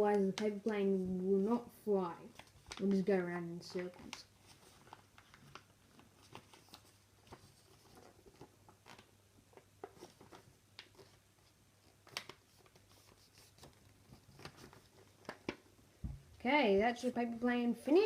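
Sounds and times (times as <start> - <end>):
paper rustling and crackling: 2.2 - 15.8.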